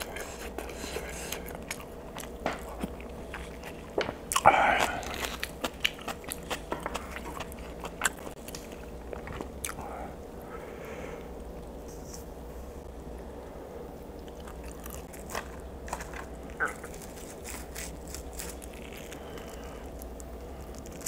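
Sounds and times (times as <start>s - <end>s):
wet chewing and mouth clicks: 1.3s - 9.8s.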